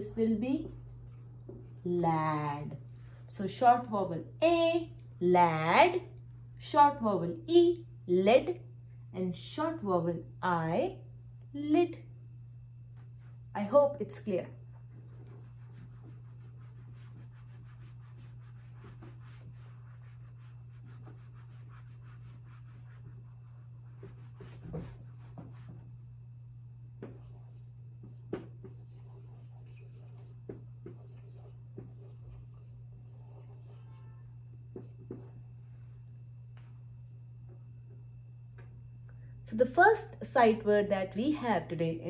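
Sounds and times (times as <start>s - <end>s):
steady low hum: 0.0s - 42.0s
pen scratching on paper: 14.9s - 25.8s, 27.0s - 34.1s.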